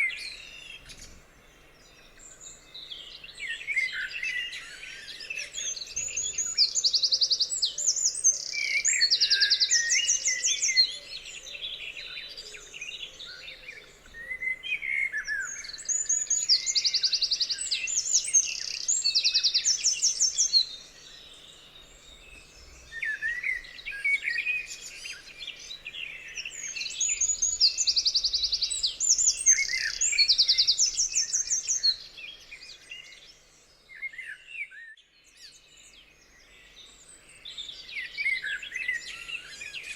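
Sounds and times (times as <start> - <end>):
lower bird chirps: 0.0 - 39.9
songbirds singing high trills: 0.0 - 39.9.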